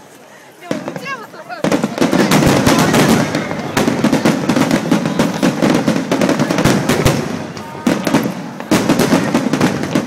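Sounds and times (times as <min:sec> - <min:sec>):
fireworks bangs and crackling: 0:00.1 - 0:10.0.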